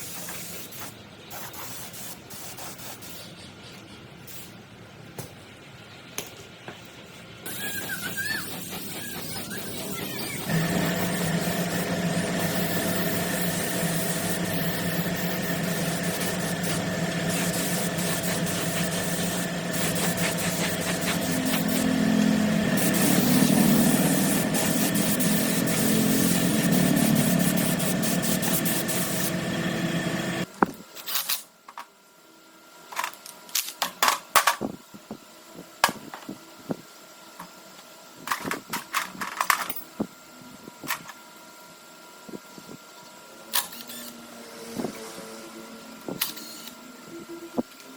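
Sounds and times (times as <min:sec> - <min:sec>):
small motor running: 0:07.4 - 0:30.5, 0:43.5 - 0:47.6.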